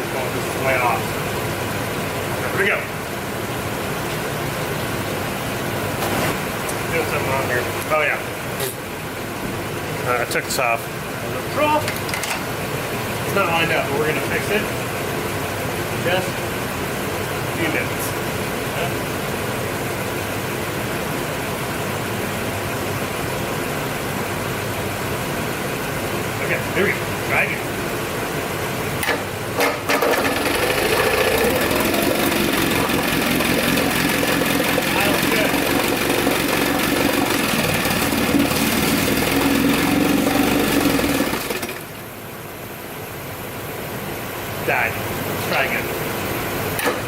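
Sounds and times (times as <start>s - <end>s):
outboard motor idling: 29.9s - 42.2s.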